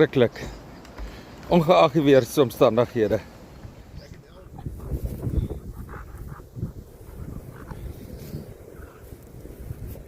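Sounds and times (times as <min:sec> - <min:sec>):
wind buffeting microphone: 0:03.5 - 0:10.0.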